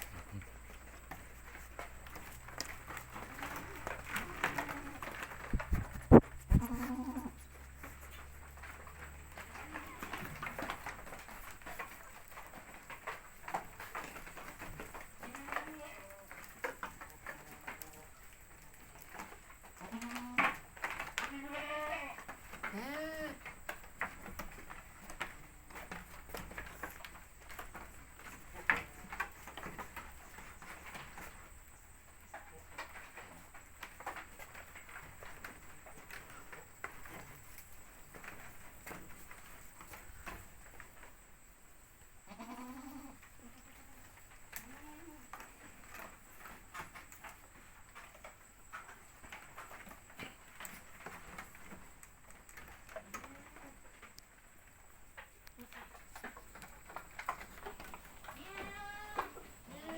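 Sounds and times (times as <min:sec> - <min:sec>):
goat hooves knocking: 0:00.0 - 0:17.9
goats bleating: 0:06.5 - 0:07.4, 0:21.3 - 0:23.4, 0:42.3 - 0:43.2, 0:58.3 - 0:59.9.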